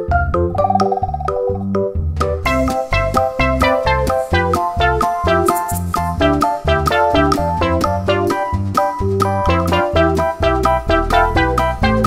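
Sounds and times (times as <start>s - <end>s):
bouncing bass line: 0.0s - 12.0s
upbeat piano-led tune: 0.0s - 12.0s
steady beat: 2.5s - 7.5s.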